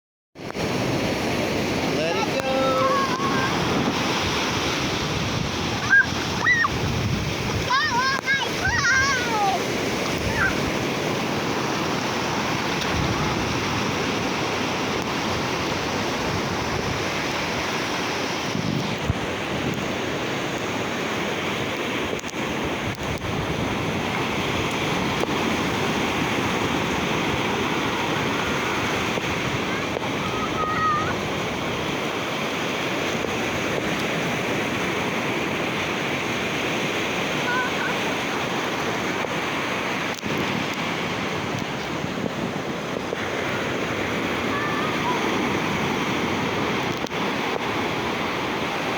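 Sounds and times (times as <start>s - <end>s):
ocean surf washing onto beach: 0.4s - 48.9s.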